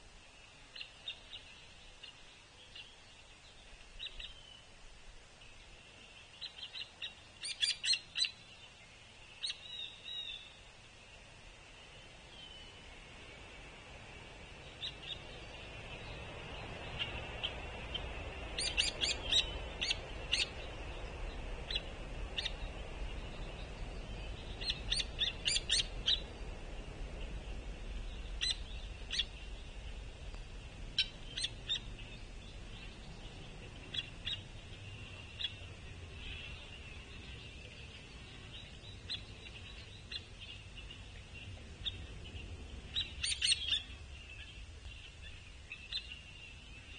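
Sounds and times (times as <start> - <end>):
woodpecker begging calls: 24.6 - 26.3, 31.0 - 31.9.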